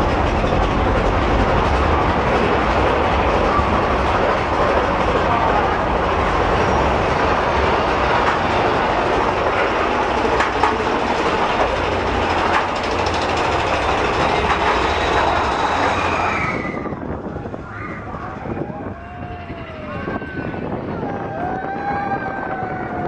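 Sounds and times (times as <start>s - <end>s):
track clicks: 6.8s - 16.3s.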